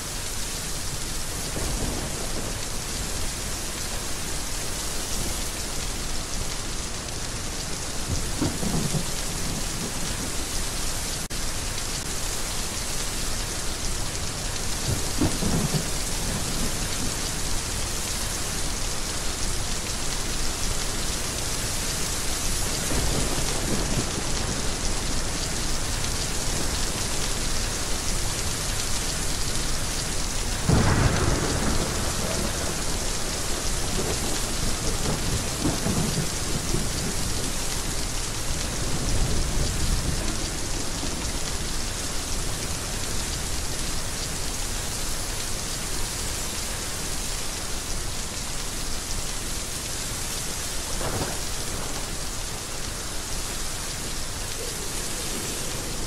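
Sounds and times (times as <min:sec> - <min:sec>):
heavy rain falling: 0:00.0 - 0:56.0
thunder rolling: 0:30.7 - 0:37.3, 0:54.6 - 0:56.0.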